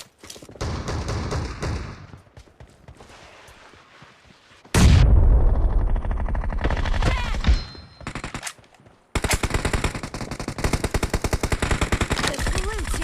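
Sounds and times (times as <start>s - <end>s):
video game automatic gunfire: 9.2s - 13.0s.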